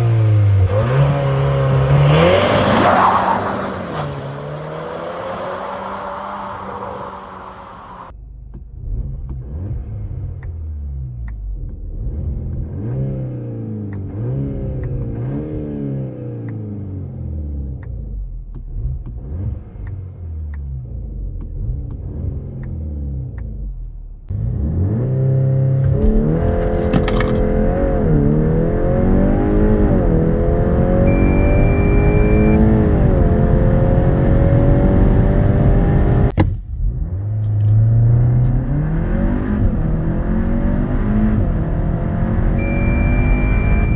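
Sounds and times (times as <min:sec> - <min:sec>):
road noise: 0:00.0 - 0:08.2, 0:24.3 - 0:43.9
car engine revving: 0:00.0 - 0:23.6, 0:24.3 - 0:43.9.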